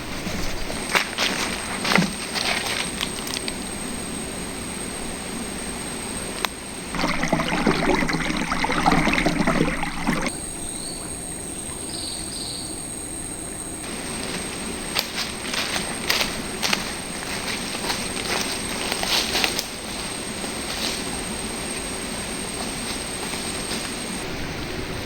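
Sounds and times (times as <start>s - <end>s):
rustling and clicking: 0.0s - 3.6s
flowing river water: 6.9s - 12.3s.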